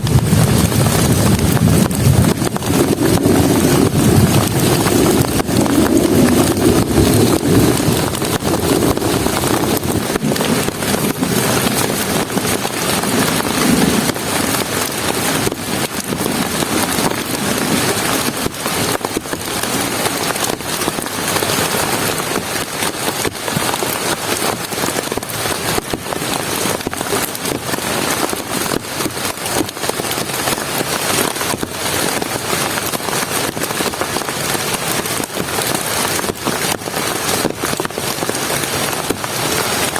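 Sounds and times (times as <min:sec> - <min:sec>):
deep rumble: 0:00.0 - 0:18.1
heavy rain falling: 0:00.0 - 0:39.9
raindrops striking close by: 0:00.0 - 0:39.9.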